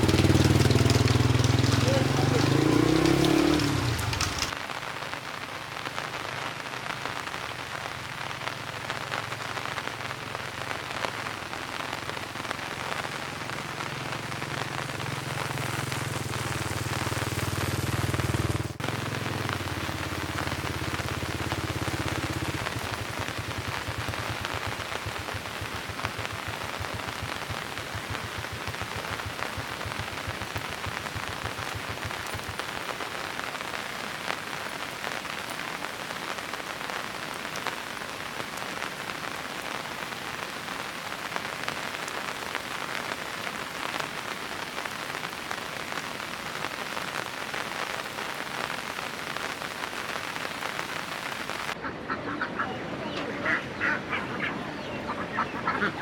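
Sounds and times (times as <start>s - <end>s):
rain pattering: 0.0s - 56.0s
ducks quacking: 51.8s - 56.0s.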